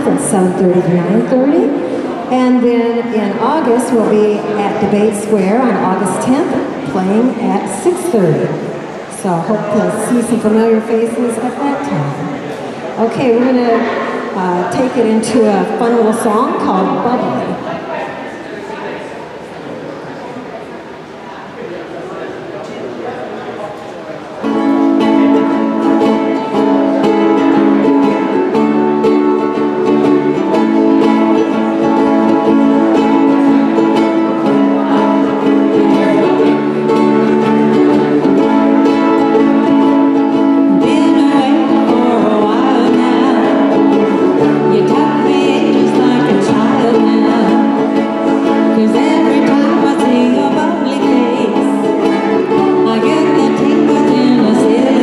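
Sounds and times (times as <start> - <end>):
strummed string instrument: 24.4 - 55.0
walking bass line: 24.5 - 55.0
person singing: 24.8 - 55.0.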